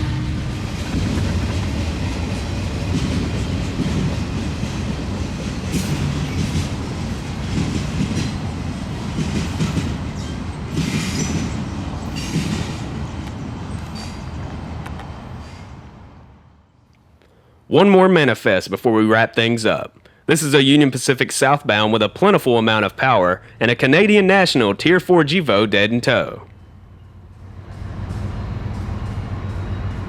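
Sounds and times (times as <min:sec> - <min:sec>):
train wheels rumbling on rails: 0:00.0 - 0:16.4, 0:26.2 - 0:30.0.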